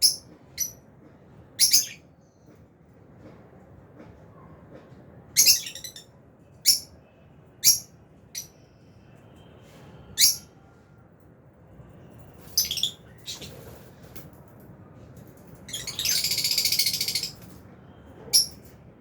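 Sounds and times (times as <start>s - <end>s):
lovebirds calling: 1.6s - 2.0s, 5.4s - 6.9s, 12.6s - 13.7s, 15.7s - 17.4s.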